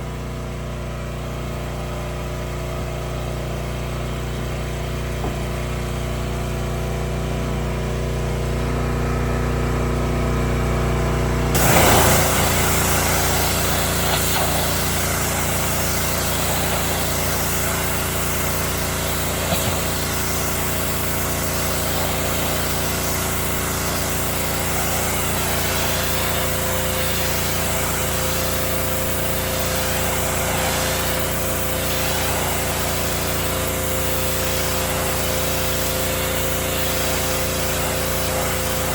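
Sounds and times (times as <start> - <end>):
pressure washer engine running: 0.0 - 38.9
high-pressure water jet hissing: 11.5 - 38.9.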